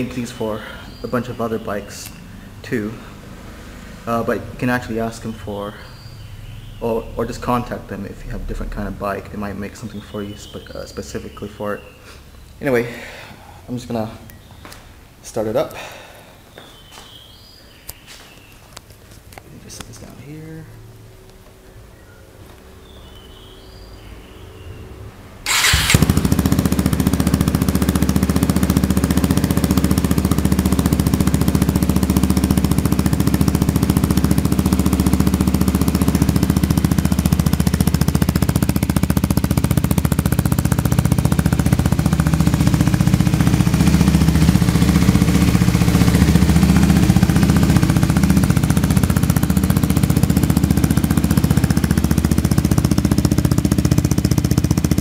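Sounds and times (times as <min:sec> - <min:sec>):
motorcycle engine idling: 0:00.0 - 0:15.2, 0:25.5 - 0:55.0.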